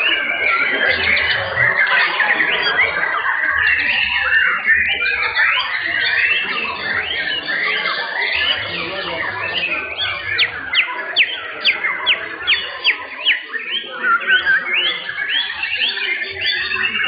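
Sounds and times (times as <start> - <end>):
many birds singing: 0.0 - 17.0.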